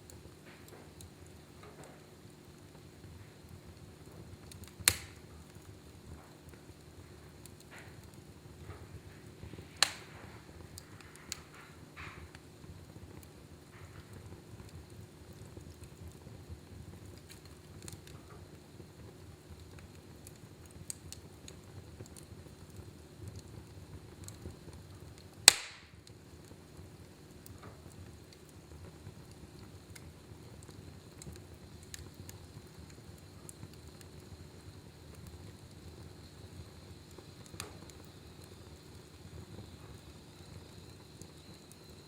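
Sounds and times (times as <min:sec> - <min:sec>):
fire crackling: 0:00.0 - 0:42.0
fire flames rushing: 0:00.0 - 0:42.0
wood fire sharp pop: 0:04.0 - 0:06.7, 0:07.4 - 0:12.5, 0:25.2 - 0:26.2, 0:37.1 - 0:38.9.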